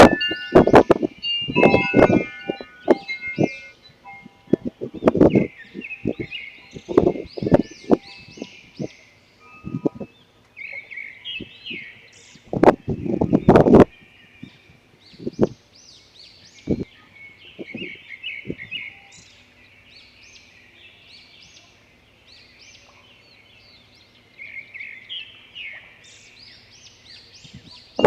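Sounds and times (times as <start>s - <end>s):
wind buffeting microphone: 0.0s - 10.1s, 11.3s - 15.6s, 16.6s - 16.9s, 17.5s - 18.8s
small birds chirping: 0.0s - 28.0s.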